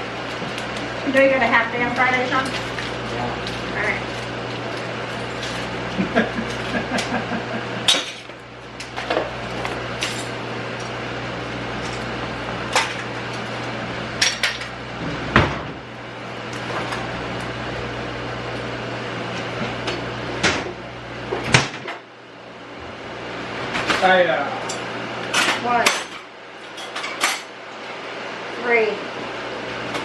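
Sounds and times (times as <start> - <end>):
steady appliance hum: 0.0 - 30.0.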